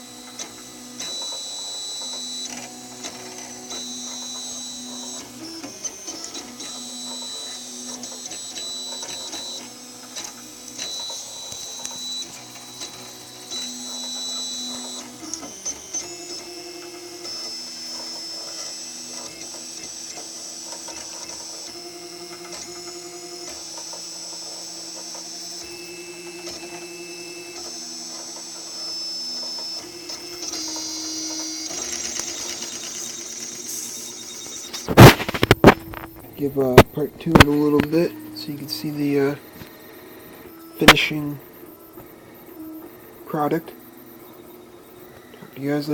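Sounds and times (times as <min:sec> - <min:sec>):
stepper motors whining: 0:00.0 - 0:45.9
printer clicks: 0:34.3 - 0:45.9.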